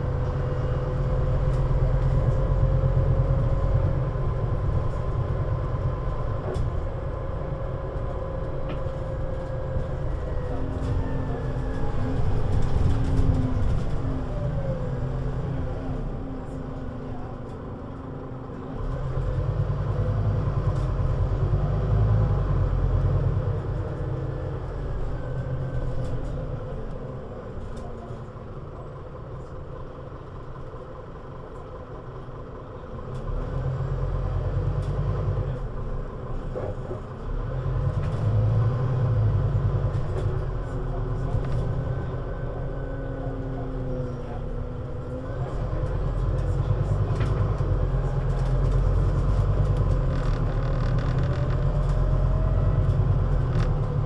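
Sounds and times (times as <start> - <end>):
bus diesel engine accelerating: 0.0 - 54.0.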